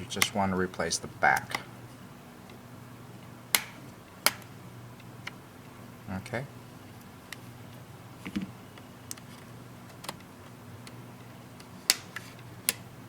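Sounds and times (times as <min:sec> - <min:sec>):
sharp plastic snaps: 0:03.5 - 0:04.5, 0:11.6 - 0:12.9.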